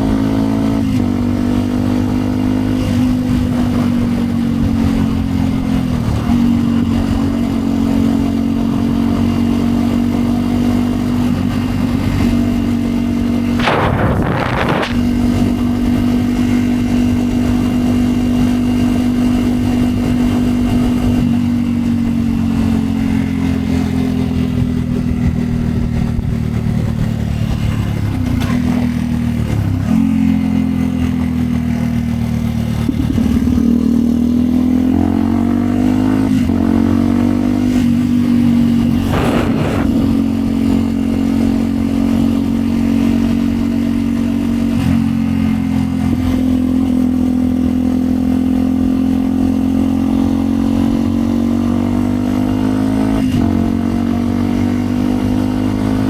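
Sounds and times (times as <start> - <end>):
motorcycle engine running: 0.0 - 56.0
short clatter: 13.6 - 15.2.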